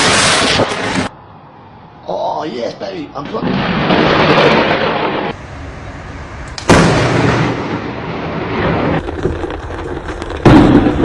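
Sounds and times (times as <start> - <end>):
thunderclap: 3.2 - 11.0.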